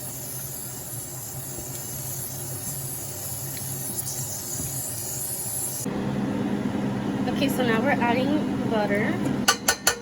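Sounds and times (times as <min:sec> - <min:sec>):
shrimp sizzling in butter: 0:00.0 - 0:05.9.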